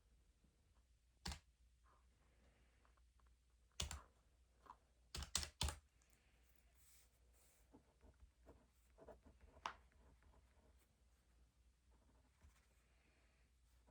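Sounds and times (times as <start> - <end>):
sharp key presses: 5.2 - 5.8.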